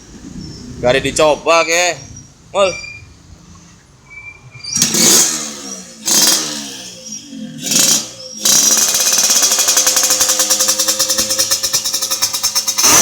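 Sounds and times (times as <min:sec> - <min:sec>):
two-stroke motorcycle engine popping: 0:07.6 - 0:13.0.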